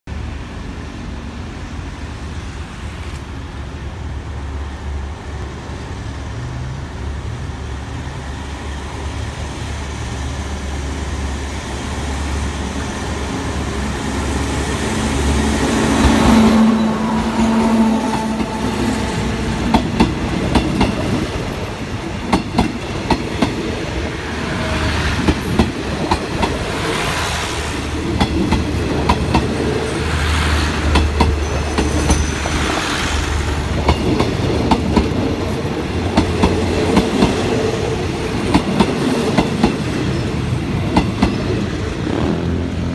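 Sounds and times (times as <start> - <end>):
train wheels clicking on rail joints: 16.0 - 24.1, 24.9 - 42.3.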